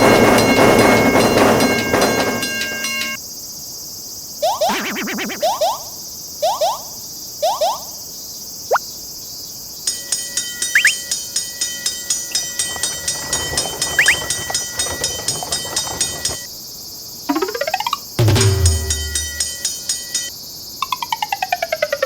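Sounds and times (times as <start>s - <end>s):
railroad crossing bell ringing: 0.0s - 3.2s, 9.9s - 16.5s, 18.2s - 20.3s
short rising cartoon chirps: 10.8s - 11.0s.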